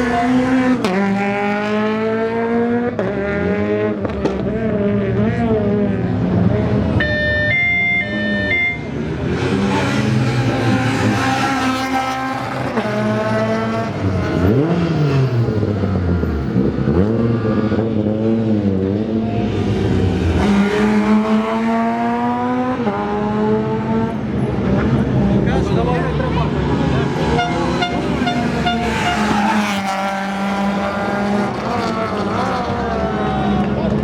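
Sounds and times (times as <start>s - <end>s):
rally car engines revving: 0.0s - 34.0s
high two-pitch beeping: 7.0s - 8.9s.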